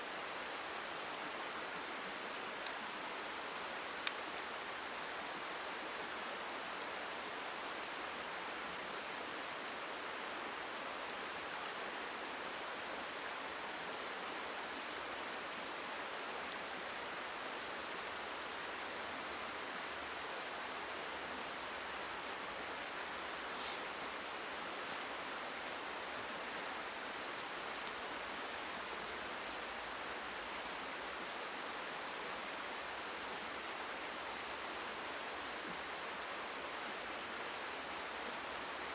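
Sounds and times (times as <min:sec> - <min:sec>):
faint ticks: 0:04.0 - 0:05.6.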